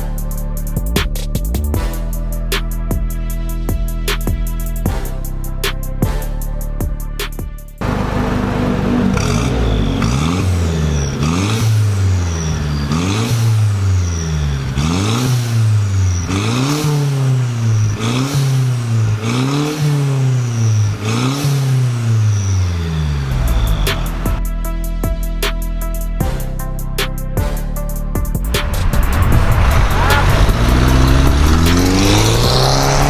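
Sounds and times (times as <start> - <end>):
car engine revving: 7.8 - 24.4, 28.4 - 33.0.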